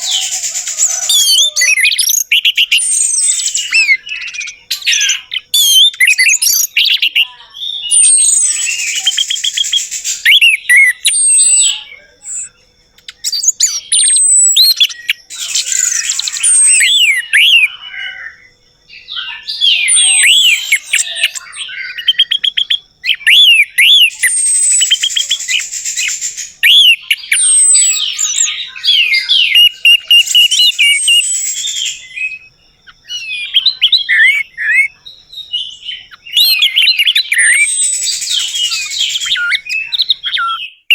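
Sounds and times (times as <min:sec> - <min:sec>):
thrush singing: 0:00.0 - 0:02.0.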